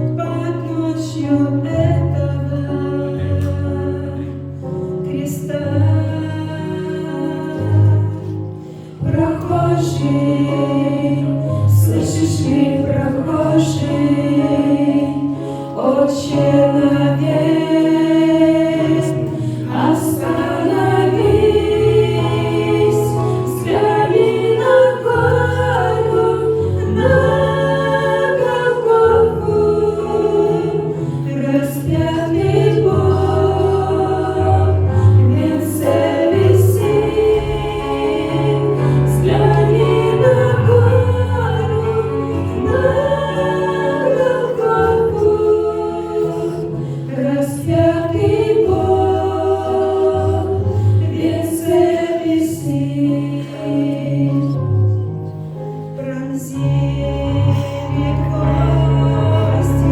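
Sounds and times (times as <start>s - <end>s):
choir singing in harmony: 0.0s - 59.9s
low bass notes: 31.9s - 43.7s.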